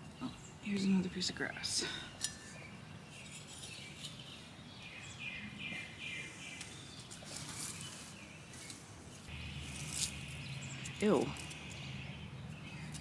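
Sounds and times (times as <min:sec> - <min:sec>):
faint birds chirping: 0:00.0 - 0:13.0
songbird singing down-slurred chirps: 0:00.0 - 0:13.0
hands rustling in soil: 0:05.8 - 0:11.7.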